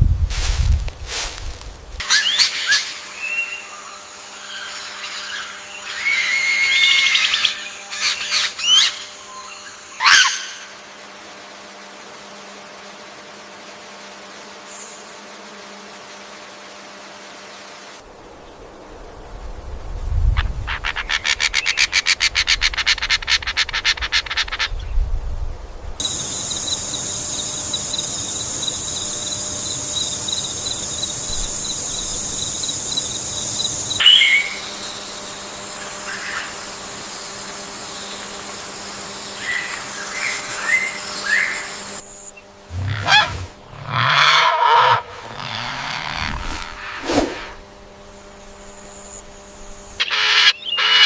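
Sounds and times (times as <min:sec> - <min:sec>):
high-pitched bird whine: 0:02.0 - 0:10.8, 0:26.0 - 0:38.2, 0:48.8 - 0:51.0
bird rattle call: 0:42.7 - 0:47.0.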